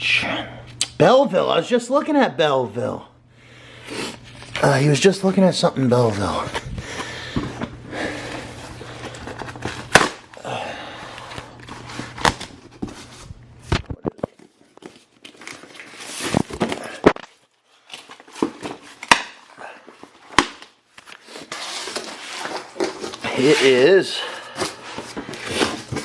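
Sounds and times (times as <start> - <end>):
packaging crinkling and rustling: 5.9 - 10.4, 11.1 - 23.8, 24.4 - 26.0
cardboard snaps and knocks: 9.4 - 10.3, 18.3 - 19.4, 20.3 - 21.1.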